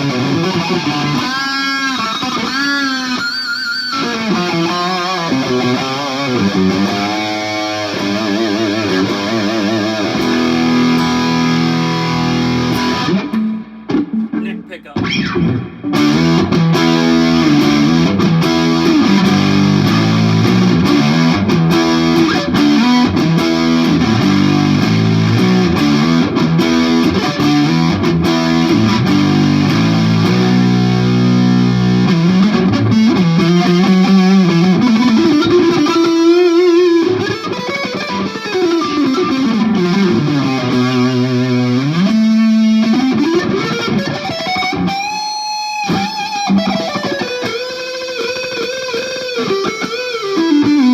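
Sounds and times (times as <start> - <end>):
distorted electric guitar: 0.0 - 50.9.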